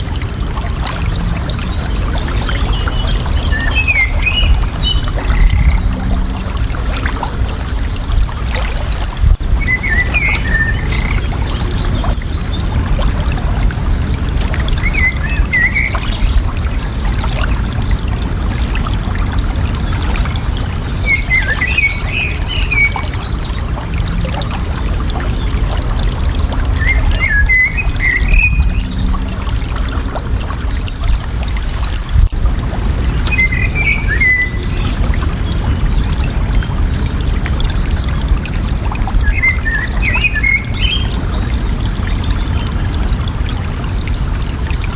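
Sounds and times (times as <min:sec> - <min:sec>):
water trickling: 0:00.0 - 0:44.9
bird chirping: 0:09.6 - 0:12.6.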